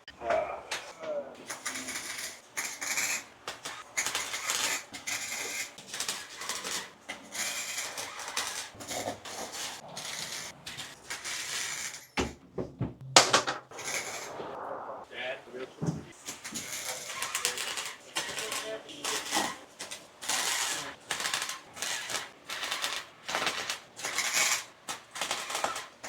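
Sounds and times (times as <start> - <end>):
welding arc crackling: 0.7 - 12.0, 13.6 - 15.0, 16.1 - 26.0
sharp knocks: 12.2 - 14.5.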